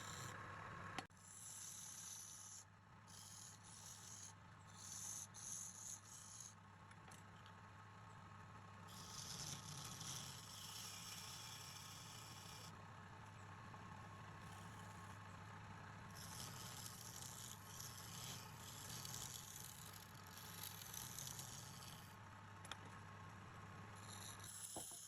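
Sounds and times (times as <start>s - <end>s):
turning tool scraping wood: 9.0s - 12.7s, 16.2s - 22.2s, 24.0s - 25.0s.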